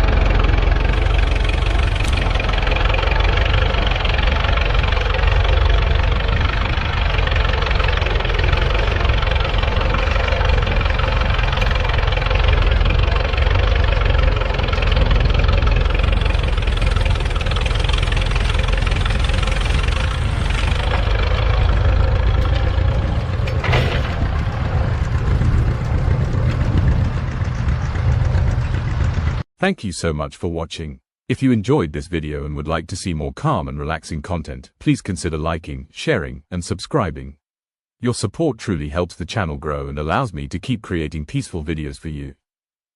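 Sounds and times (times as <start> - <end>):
tractor engine running: 0.0 - 29.4.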